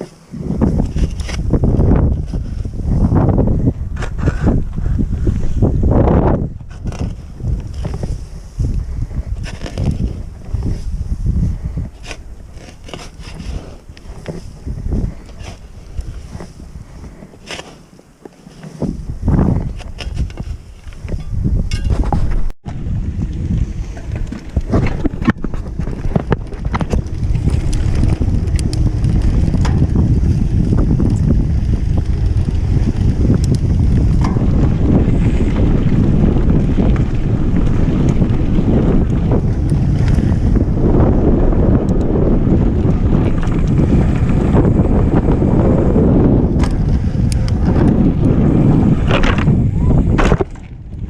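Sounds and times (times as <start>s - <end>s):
wind buffeting microphone: 0.0s - 17.7s, 18.8s - 51.0s
bike knocks and rattles: 18.8s - 51.0s.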